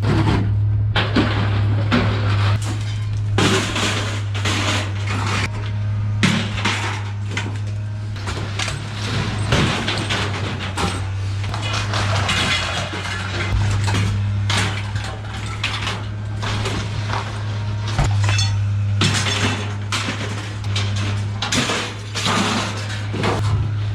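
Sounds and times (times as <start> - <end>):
scrap metal clanking: 0.0 - 23.9
steady low hum: 0.0 - 23.9.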